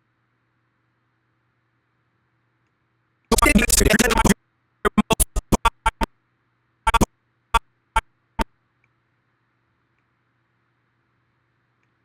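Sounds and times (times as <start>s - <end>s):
stuttering music snippets: 3.3s - 6.1s, 6.9s - 7.1s.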